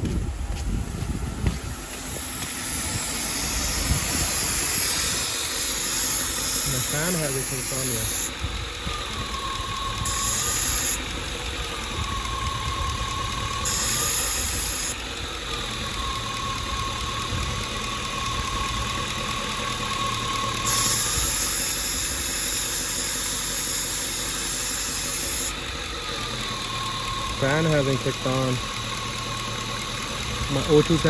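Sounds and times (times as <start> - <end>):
car engine idling: 0.0 - 31.0
faint high whine: 1.6 - 8.3.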